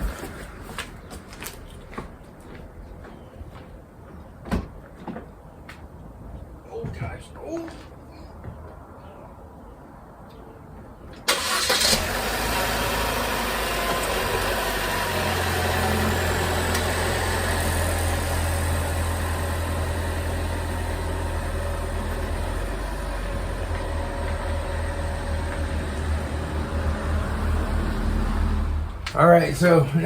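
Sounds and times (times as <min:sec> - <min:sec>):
car engine starting and idling: 0:11.2 - 0:30.0.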